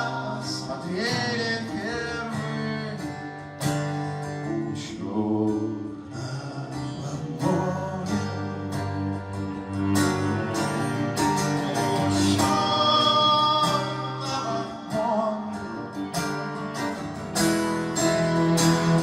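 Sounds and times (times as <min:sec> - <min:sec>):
acoustic guitar strumming: 0:00.0 - 0:19.0
cello sustained notes: 0:08.1 - 0:15.3, 0:17.8 - 0:19.0.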